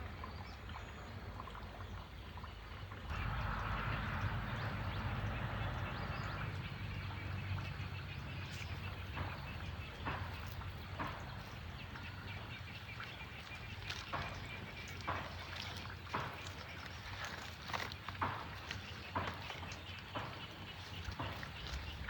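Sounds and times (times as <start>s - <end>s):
sharp knocks: 9.0s - 11.7s.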